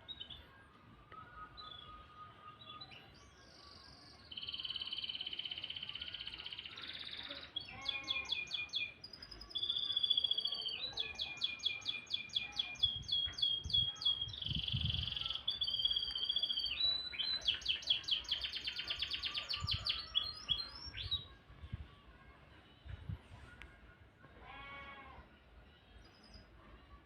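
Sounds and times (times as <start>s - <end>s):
canary singing: 0.1s - 21.4s.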